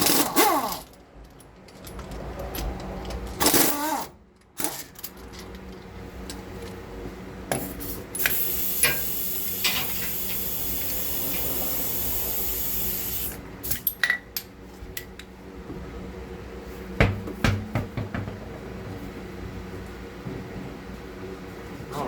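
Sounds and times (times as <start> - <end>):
spray hissing: 8.2 - 13.4
clinks of metal tools: 13.6 - 15.3.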